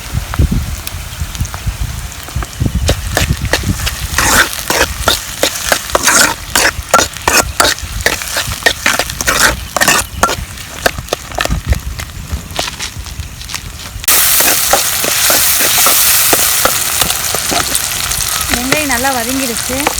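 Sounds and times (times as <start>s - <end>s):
onions sizzling in a pan: 0.0s - 11.4s, 14.1s - 19.9s
spoon scraping a pan: 2.9s - 11.7s, 14.1s - 19.9s.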